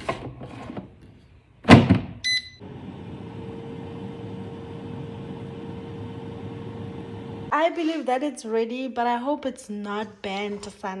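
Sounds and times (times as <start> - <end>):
air fryer beep: 2.2 - 7.5
fan humming with faint whine: 2.3 - 7.6.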